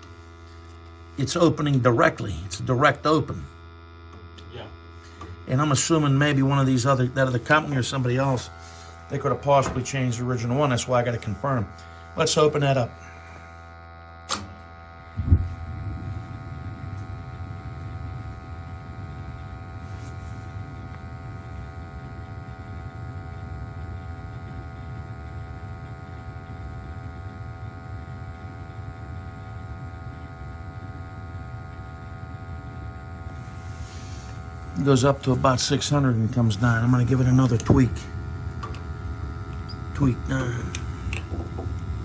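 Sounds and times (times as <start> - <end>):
gas burners lighting and burning: 0.0 - 42.0.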